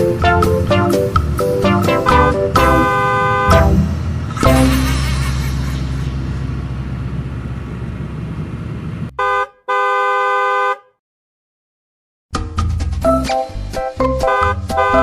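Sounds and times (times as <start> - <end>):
music: 0.0 - 2.9, 3.5 - 5.9, 12.3 - 15.0
low vehicle rumble: 0.0 - 9.2
car horn honking: 1.9 - 3.9, 9.2 - 11.0, 14.2 - 15.0.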